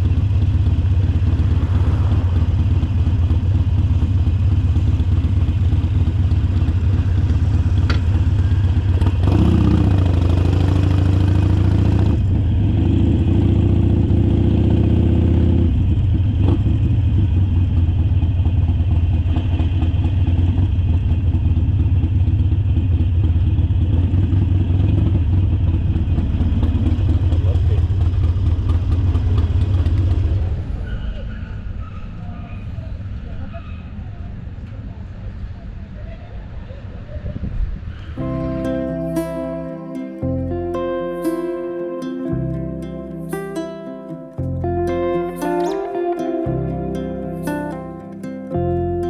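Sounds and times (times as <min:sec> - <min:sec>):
higher wavering engine note: 0:00.0 - 0:04.7, 0:38.2 - 0:49.0
motorcycle engine running: 0:00.0 - 0:30.7.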